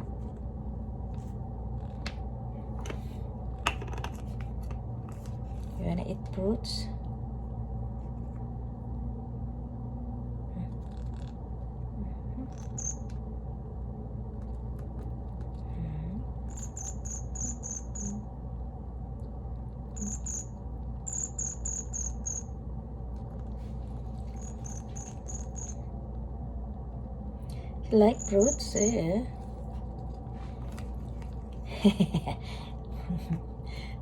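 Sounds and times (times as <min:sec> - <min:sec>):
steady low hum: 0:00.0 - 0:34.0
bird chirping: 0:12.5 - 0:13.1, 0:16.5 - 0:18.2, 0:20.0 - 0:20.5, 0:21.1 - 0:22.5, 0:24.4 - 0:25.8, 0:28.0 - 0:29.1.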